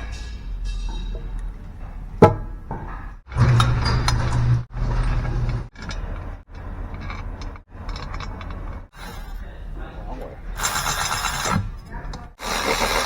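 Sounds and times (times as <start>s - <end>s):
small tool motor humming: 9.0s - 9.4s, 10.6s - 11.6s, 12.4s - 13.0s.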